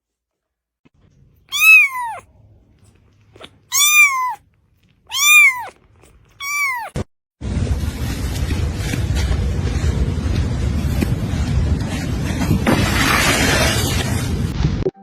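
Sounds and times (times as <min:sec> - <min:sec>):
cat meowing: 0:01.5 - 0:02.3, 0:03.3 - 0:04.4, 0:05.1 - 0:07.0.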